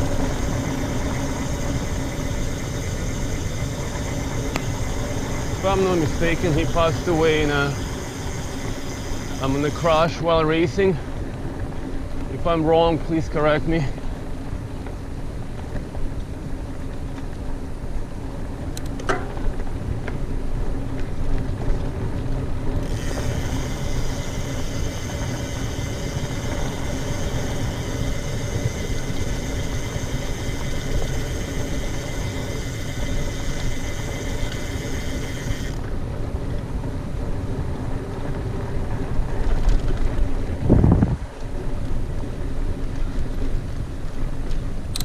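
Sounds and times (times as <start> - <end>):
high steady buzz: 0.0 - 10.7, 22.8 - 35.9
bike tyres rumbling on dirt: 0.0 - 45.0
wind noise on microphone: 0.0 - 45.0.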